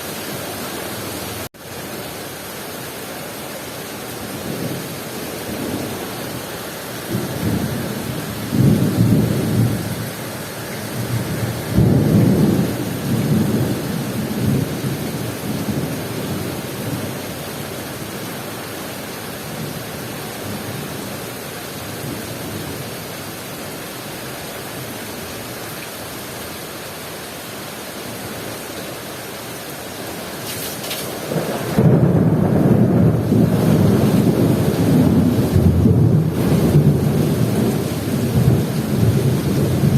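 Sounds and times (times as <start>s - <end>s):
heavy rain: 0.0s - 39.9s
rolling thunder: 7.0s - 17.2s, 31.0s - 39.9s.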